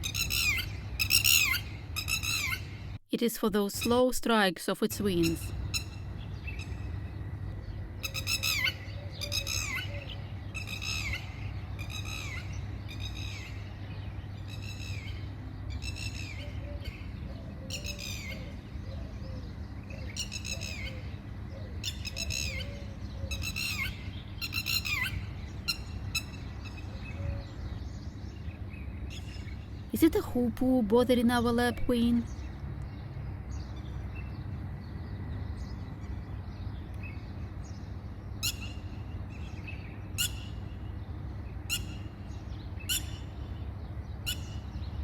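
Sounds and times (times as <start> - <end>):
lapwing calling: 0.0 - 2.8, 5.2 - 13.6, 14.5 - 27.7.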